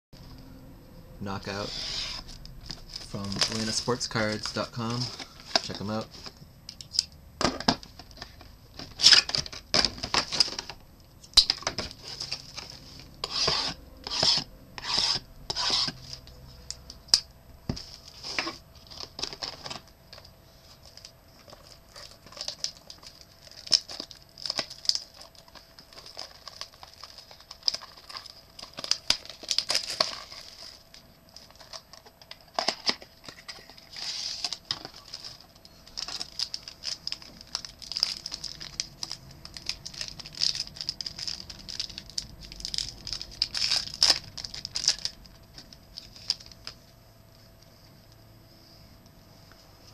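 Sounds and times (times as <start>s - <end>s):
wrappers tearing and crackling: 8.0s - 13.8s, 18.0s - 46.8s.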